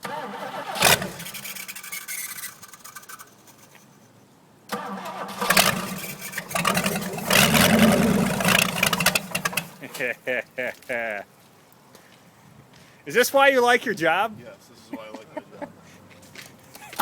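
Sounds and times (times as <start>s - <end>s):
engine cranking on starter: 0.0s - 3.4s, 4.7s - 9.9s.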